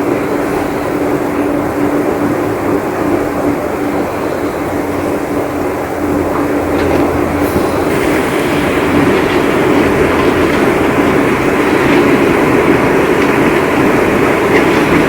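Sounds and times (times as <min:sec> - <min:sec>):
heavy rain: 0:07.3 - 0:15.0.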